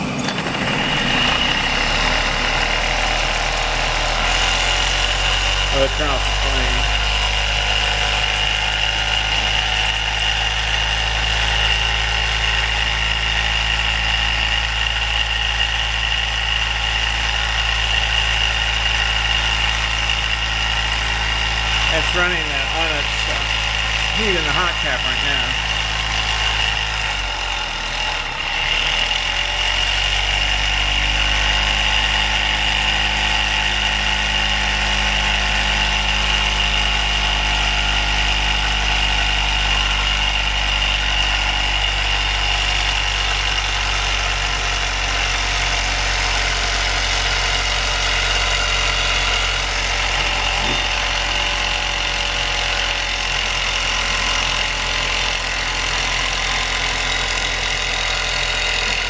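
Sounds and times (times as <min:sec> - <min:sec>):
stirling engine humming: 0:00.0 - 0:09.6.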